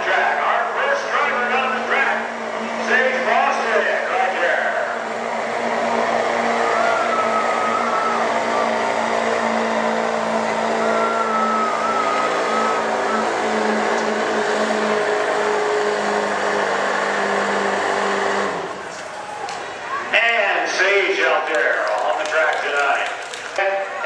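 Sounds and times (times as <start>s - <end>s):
pickup truck engine under heavy load: 0.0s - 19.9s
wavering high whistle: 6.6s - 8.9s, 10.7s - 13.6s.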